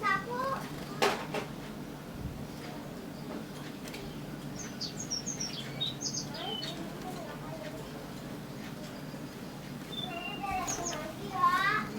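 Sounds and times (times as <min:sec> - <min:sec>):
songbird chirping: 0:04.6 - 0:06.8, 0:09.0 - 0:11.3.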